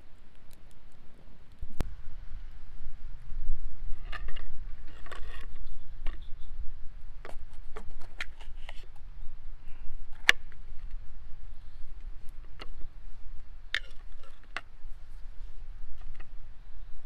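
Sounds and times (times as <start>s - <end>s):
campfire crackling: 0.0s - 3.2s
low rumble: 1.6s - 5.0s.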